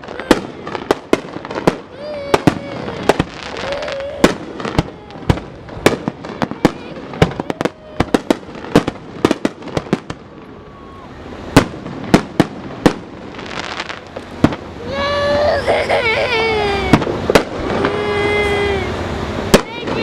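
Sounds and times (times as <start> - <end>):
faint voices: 0.0 - 8.6, 10.4 - 11.5, 14.7 - 20.0
fireworks bangs and pops: 0.0 - 14.8, 16.8 - 18.2, 18.9 - 20.0.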